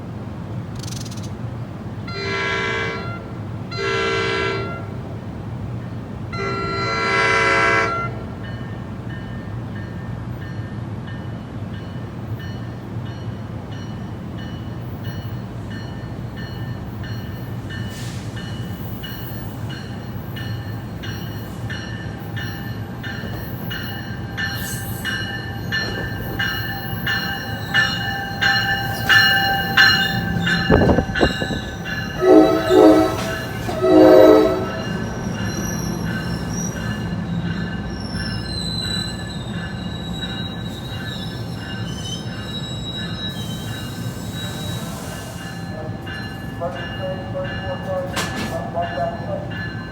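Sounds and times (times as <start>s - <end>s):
train rumbling: 0.0s - 49.9s
short horn blasts: 6.4s - 8.2s, 32.2s - 35.0s
train bell ringing: 6.4s - 49.9s.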